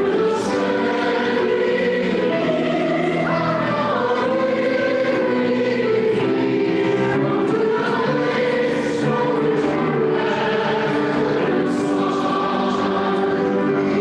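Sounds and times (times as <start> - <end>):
choir singing in church: 0.0 - 14.0.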